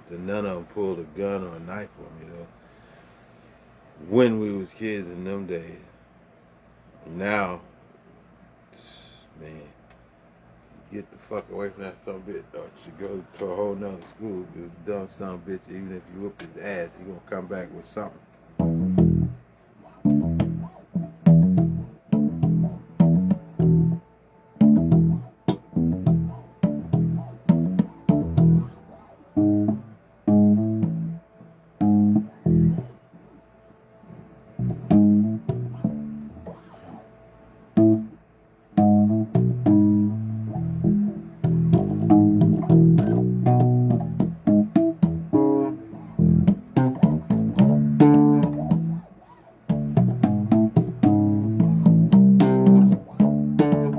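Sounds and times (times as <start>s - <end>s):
bass guitar plucked notes: 18.6s - 24.0s, 24.6s - 33.0s, 34.6s - 36.8s, 37.8s - 38.2s, 38.8s - 49.1s, 49.7s - 53.9s.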